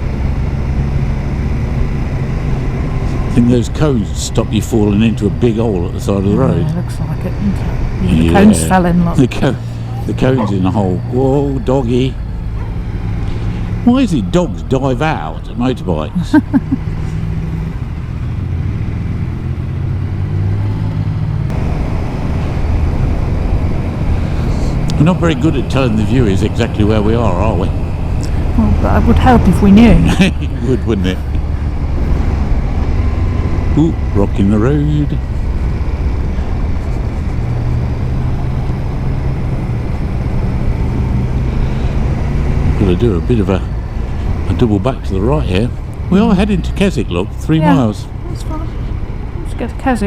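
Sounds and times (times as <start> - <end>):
motorcycle engine running: 0.0 - 50.0
road noise: 0.0 - 50.0.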